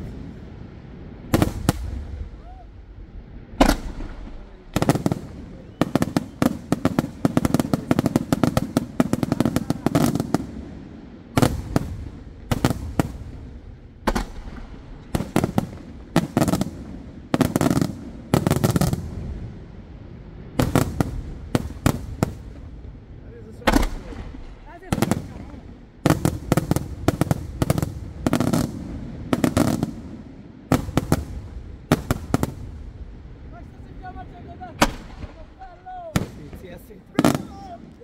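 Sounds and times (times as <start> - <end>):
firework shells bursting: 3.6 - 10.4.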